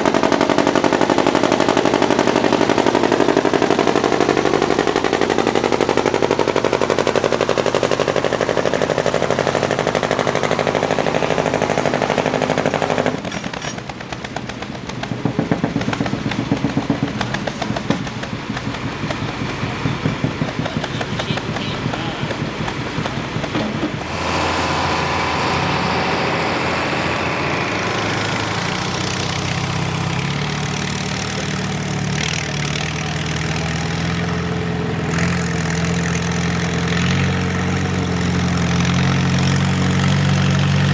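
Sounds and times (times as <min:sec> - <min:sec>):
engine idling: 0:00.0 - 0:40.9
rapid popping exhaust: 0:00.0 - 0:40.9
tractor engine running hard: 0:00.0 - 0:40.9.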